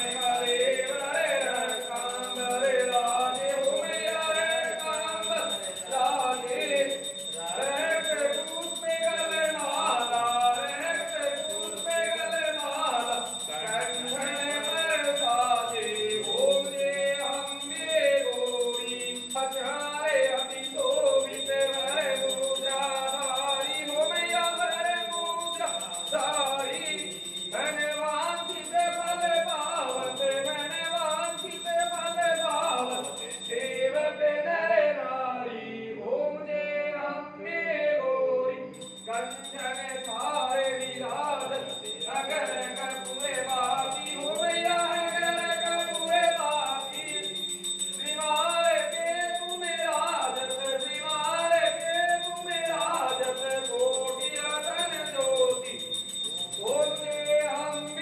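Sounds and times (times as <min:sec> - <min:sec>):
people singing devotional song: 0:00.0 - 0:58.0
music with light jingling: 0:38.8 - 0:58.0.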